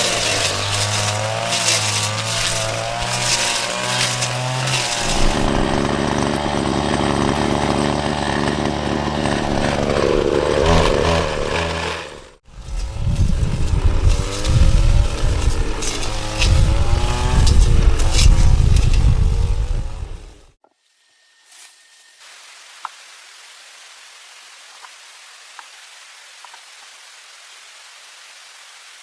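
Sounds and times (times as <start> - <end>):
small engine running: 0.0 - 20.5.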